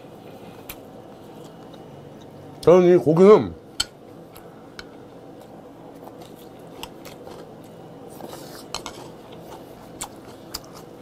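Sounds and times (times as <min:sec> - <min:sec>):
close-up chewing: 0:05.4 - 0:11.0.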